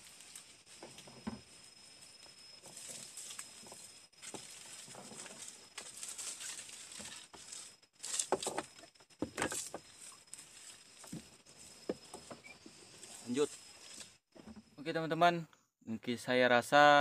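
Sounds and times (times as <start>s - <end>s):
leaves rustling and crackling: 0.0s - 8.6s, 9.5s - 11.8s
faint high-pitched tone: 0.0s - 16.2s.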